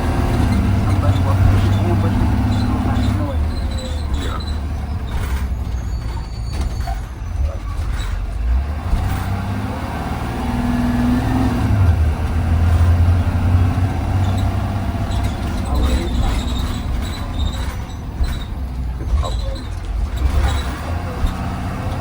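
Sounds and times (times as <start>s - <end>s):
bus engine droning: 0.0s - 22.0s
road noise: 0.0s - 22.0s.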